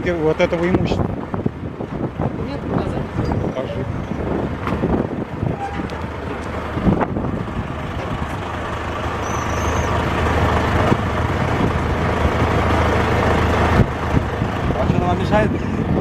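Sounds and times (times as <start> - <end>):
heavy vehicle engine rumbling: 0.0 - 16.0.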